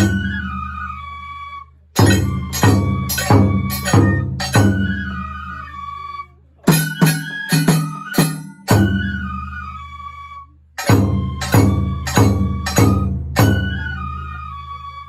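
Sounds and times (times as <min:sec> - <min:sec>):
bamboo flute melody: 0:00.0 - 0:15.0
taiko drum strokes: 0:02.0 - 0:05.2, 0:10.8 - 0:13.9.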